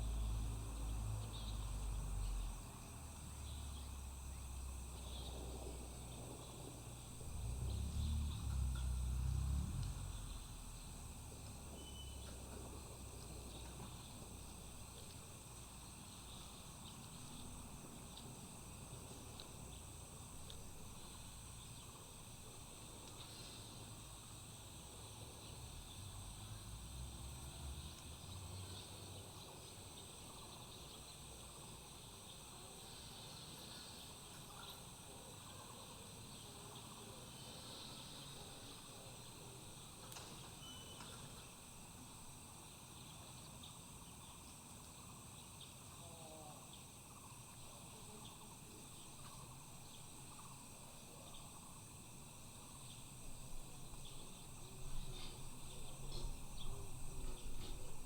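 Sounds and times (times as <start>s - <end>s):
insect chorus drone: 0.0s - 58.0s
faint bird chirps: 0.1s - 6.8s, 10.0s - 15.2s, 32.2s - 41.5s
low rumble: 5.5s - 11.6s.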